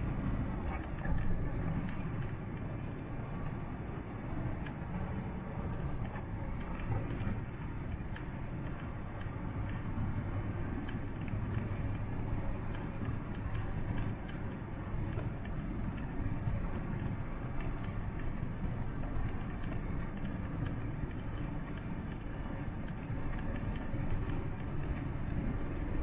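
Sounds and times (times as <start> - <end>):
light ticks: 0.2 - 26.0.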